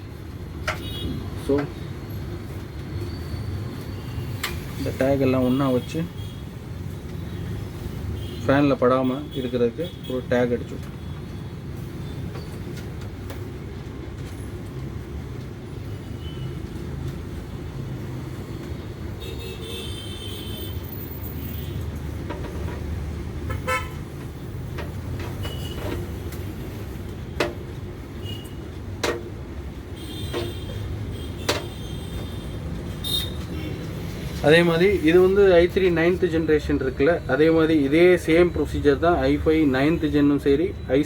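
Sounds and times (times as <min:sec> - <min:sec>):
street traffic: 0:00.0 - 0:41.0
vehicle horns tooting: 0:00.8 - 0:01.2, 0:19.2 - 0:21.8, 0:23.5 - 0:24.1, 0:25.3 - 0:26.0, 0:30.0 - 0:33.9.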